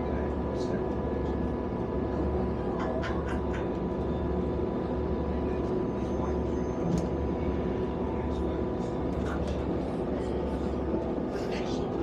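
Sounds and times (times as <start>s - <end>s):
train rumble and hum: 0.0s - 12.0s.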